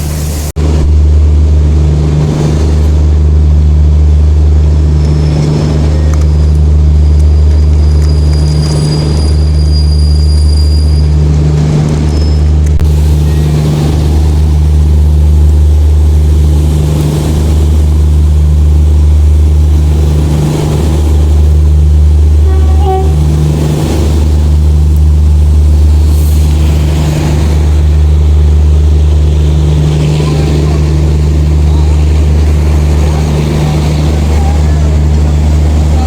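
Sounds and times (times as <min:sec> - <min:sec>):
diesel engine idling: 0:12.7 - 0:36.0.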